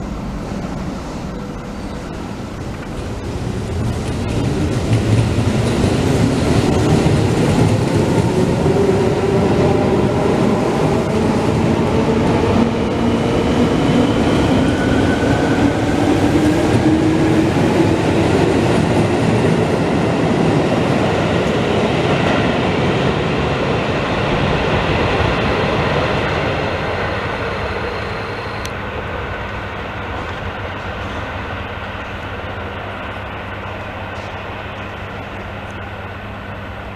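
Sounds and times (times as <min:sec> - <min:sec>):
train wheels clattering over rails: 0:02.5 - 0:24.3.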